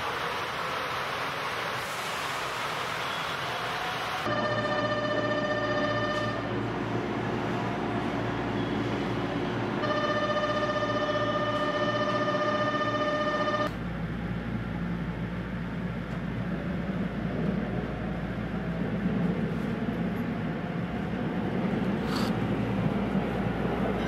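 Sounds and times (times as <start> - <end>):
train rumbling inside car: 0.0 - 24.0
electronic tone: 4.3 - 6.4, 9.8 - 13.7.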